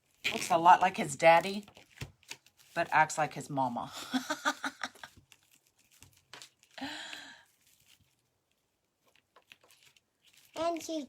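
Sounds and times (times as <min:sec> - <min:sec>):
plastic mesh crinkling: 0:04.3 - 0:06.8, 0:07.5 - 0:11.0.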